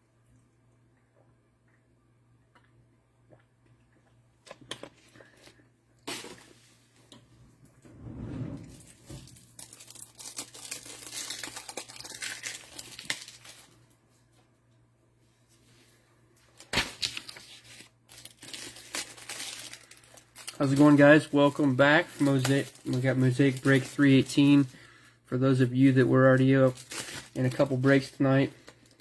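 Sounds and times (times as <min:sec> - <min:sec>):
plastic wrapping tearing and crinkling: 0:08.8 - 0:13.9, 0:16.5 - 0:24.8, 0:25.6 - 0:29.0.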